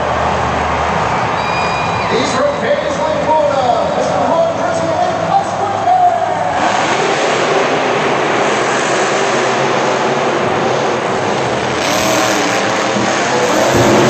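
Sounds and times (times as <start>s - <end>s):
monster truck engine revving: 6.4s - 14.0s.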